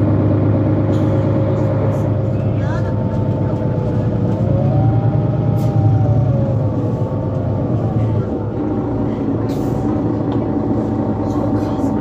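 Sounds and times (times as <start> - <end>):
bus engine drone with whine: 0.0 - 12.0.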